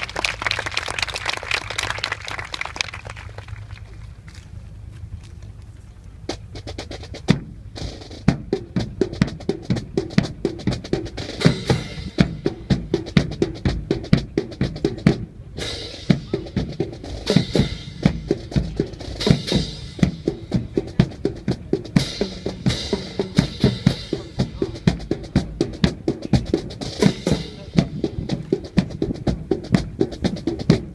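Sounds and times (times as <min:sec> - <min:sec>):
snare and bass drum beat: 0:06.2 - 0:30.9.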